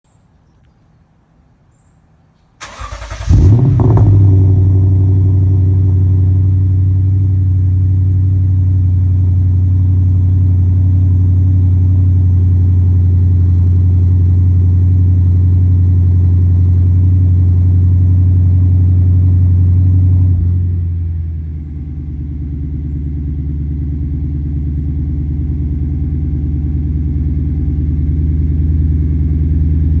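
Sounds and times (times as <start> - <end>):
car engine cranking and starting: 2.6 - 8.8
car engine idling: 2.6 - 30.0.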